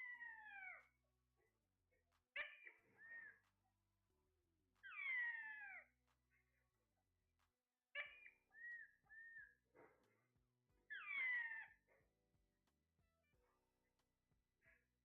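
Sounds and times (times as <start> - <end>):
parrot meow-like calls: 0.0 - 0.9, 4.8 - 5.9, 10.9 - 11.8.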